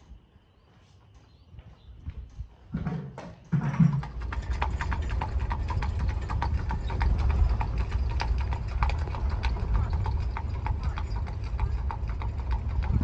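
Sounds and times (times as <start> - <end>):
horse hooves clip-clopping: 1.2 - 13.0
low rumble: 4.0 - 13.0.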